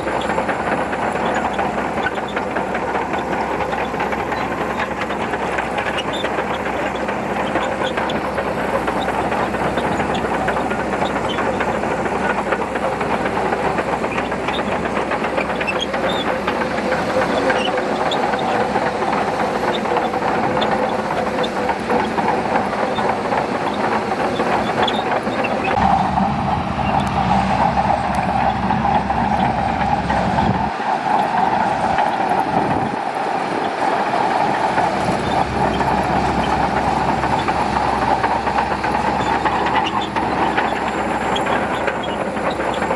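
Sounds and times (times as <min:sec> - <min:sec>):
bulldozer engine clattering: 0:00.0 - 0:42.9.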